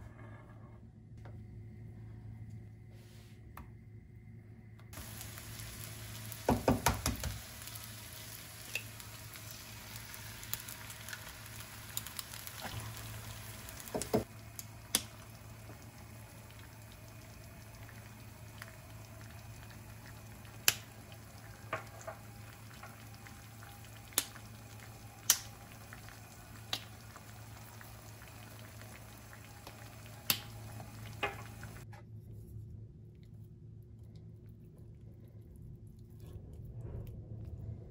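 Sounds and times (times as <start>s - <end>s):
food sizzling: 5.0s - 31.8s
low hum: 7.4s - 37.9s.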